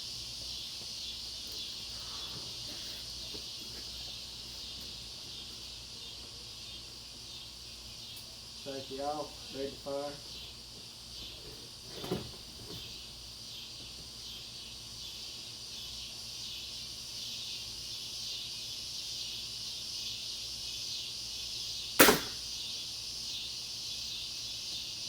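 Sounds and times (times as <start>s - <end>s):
insect chorus chirring: 0.0s - 25.0s
crossbow firing snap: 22.0s - 22.5s.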